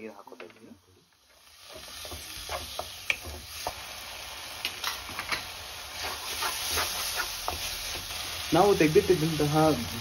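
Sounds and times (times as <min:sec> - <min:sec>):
masala sizzling in a pan: 0:00.0 - 0:10.0
spatula scraping and knocking pan: 0:04.6 - 0:08.2.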